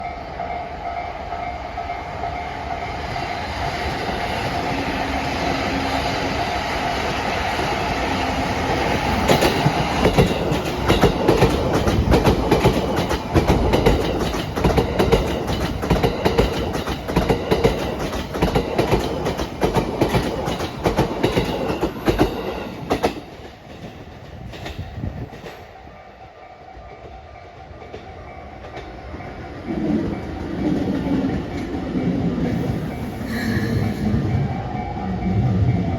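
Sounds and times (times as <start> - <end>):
train wheels clicking over rail joints: 3.9 - 25.8.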